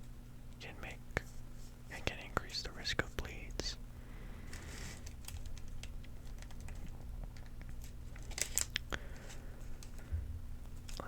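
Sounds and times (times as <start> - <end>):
paper rustling and crinkling: 4.4 - 11.0.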